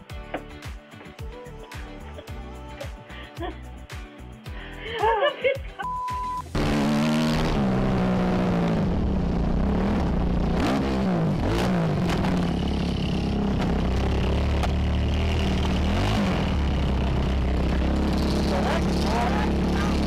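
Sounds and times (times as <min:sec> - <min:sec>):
dirt bike engine revving: 0:06.5 - 0:20.0.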